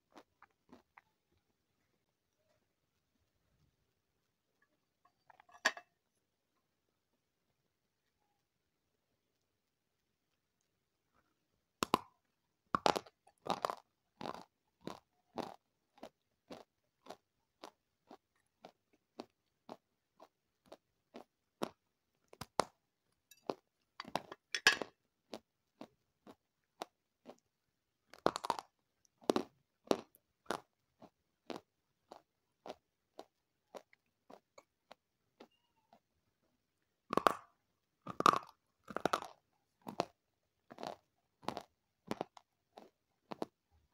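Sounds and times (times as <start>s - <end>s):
crunchy chewing: 0.0s - 1.5s, 12.8s - 36.0s, 38.1s - 43.7s
biting crunchy food: 11.8s - 22.8s, 23.4s - 27.5s, 28.1s - 35.5s, 37.1s - 43.6s.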